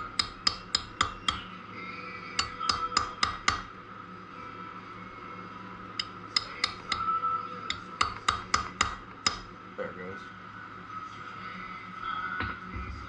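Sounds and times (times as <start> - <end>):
hammer striking metal: 0.0 - 1.5, 2.4 - 3.7, 6.0 - 9.5.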